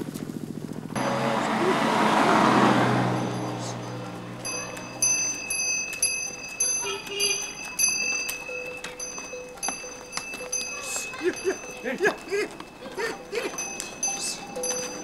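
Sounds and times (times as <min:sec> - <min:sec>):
small metal bell ringing: 0:03.0 - 0:15.0.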